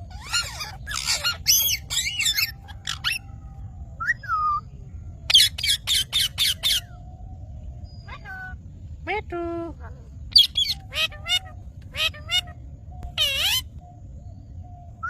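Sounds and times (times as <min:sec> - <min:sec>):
parakeets squawking: 0:00.0 - 0:03.3, 0:05.3 - 0:07.0, 0:10.3 - 0:13.8.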